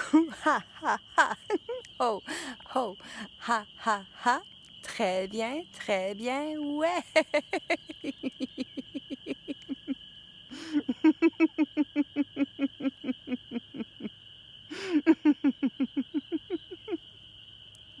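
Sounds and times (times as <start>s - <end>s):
person laughing heartily: 0.0s - 4.3s, 6.3s - 14.1s, 14.7s - 17.0s.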